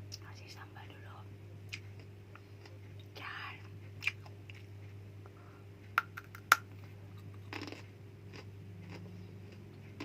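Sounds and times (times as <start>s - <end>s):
chewing: 7.2s - 9.7s
sharp food crunches: 7.5s - 9.0s.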